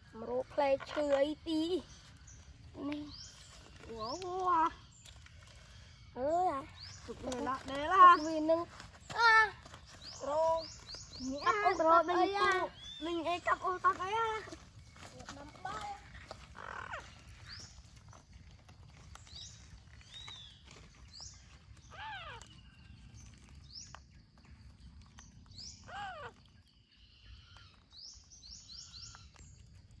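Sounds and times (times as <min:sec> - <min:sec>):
longer arched bird calls: 0:00.0 - 0:18.1
birds chirping: 0:00.0 - 0:30.0.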